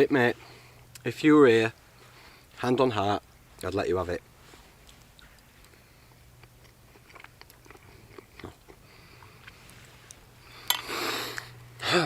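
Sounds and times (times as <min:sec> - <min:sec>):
man chewing: 0:04.8 - 0:11.7.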